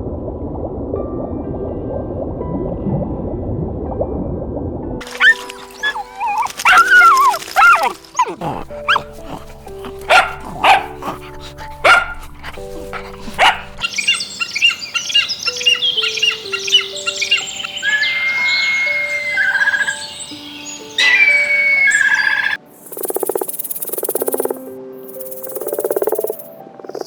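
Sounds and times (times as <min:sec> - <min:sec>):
background music: 0:00.8 - 0:27.0
dog barking: 0:05.0 - 0:15.2
birds chirping: 0:05.0 - 0:22.6.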